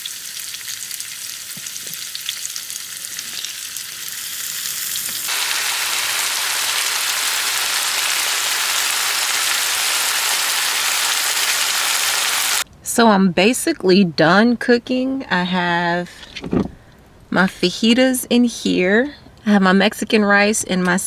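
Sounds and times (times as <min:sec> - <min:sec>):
food sizzling in a skillet: 0:00.0 - 0:12.7.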